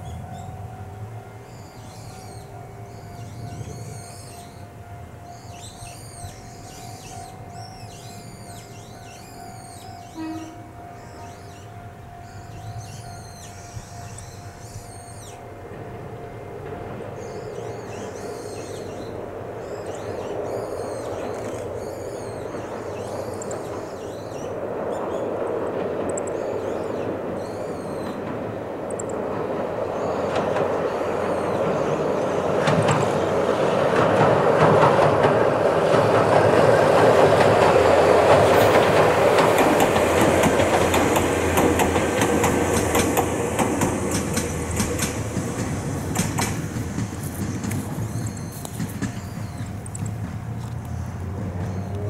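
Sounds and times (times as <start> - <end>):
electric train rumbling over bridge: 0.0 - 52.0
small birds chirping: 47.2 - 52.0.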